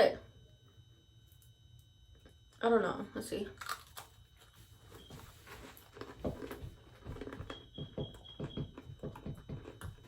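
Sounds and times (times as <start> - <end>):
soft chewing of cookie: 3.6 - 10.0.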